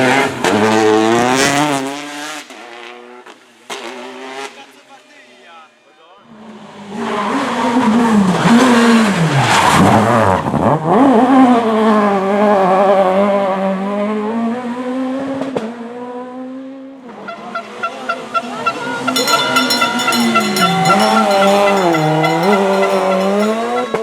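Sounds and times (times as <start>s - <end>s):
rally car engine accelerating: 0.0s - 4.6s, 6.3s - 19.6s.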